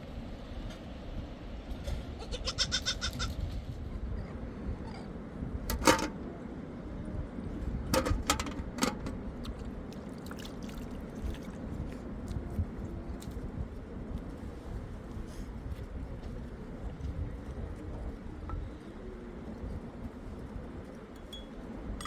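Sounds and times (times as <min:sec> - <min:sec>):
livestock bleating: 0:02.2 - 0:03.3.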